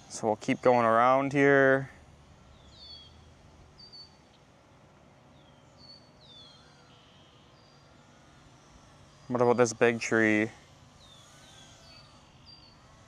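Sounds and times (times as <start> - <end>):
quiet outdoor background noise: 0.0 - 13.0
high bird chirps: 2.5 - 4.4, 5.4 - 7.9, 11.0 - 12.8.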